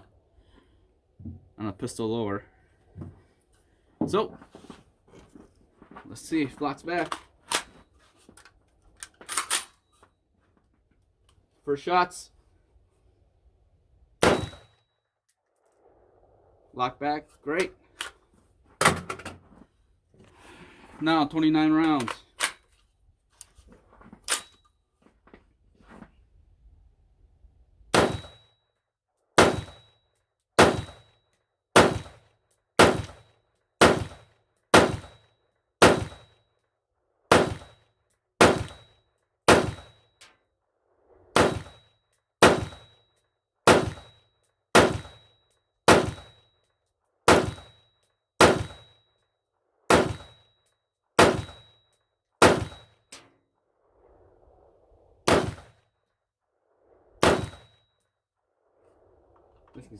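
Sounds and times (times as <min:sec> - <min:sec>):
rifle shots: 0:14.2 - 0:14.7, 0:27.9 - 0:28.4, 0:29.4 - 0:29.8, 0:30.6 - 0:31.1, 0:31.8 - 0:32.2, 0:32.8 - 0:35.2, 0:35.8 - 0:36.3, 0:37.3 - 0:37.8, 0:38.4 - 0:38.9, 0:39.5 - 0:40.0, 0:41.4 - 0:41.8, 0:42.4 - 0:42.9, 0:43.7 - 0:44.2, 0:44.8 - 0:45.2, 0:45.9 - 0:46.4, 0:47.3 - 0:47.8, 0:48.4 - 0:49.0, 0:49.9 - 0:50.4, 0:51.2 - 0:51.7, 0:52.4 - 0:53.2, 0:55.2 - 0:55.8, 0:57.2 - 0:57.8.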